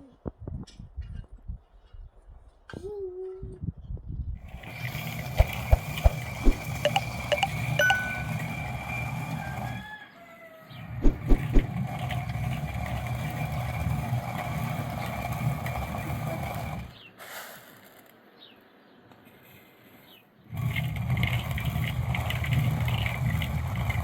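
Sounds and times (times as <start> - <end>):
bird chirps: 5.7 - 8.4.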